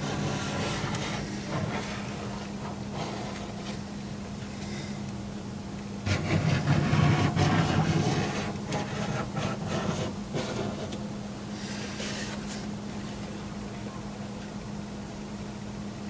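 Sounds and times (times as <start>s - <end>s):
hand rubbing and scraping surface: 0.0s - 3.9s, 6.1s - 11.0s, 11.6s - 12.7s.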